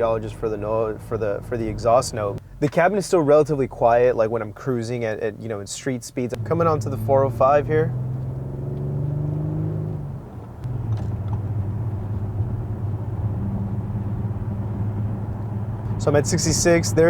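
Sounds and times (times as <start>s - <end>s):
car exhaust drone from cabin: 6.3s - 17.0s.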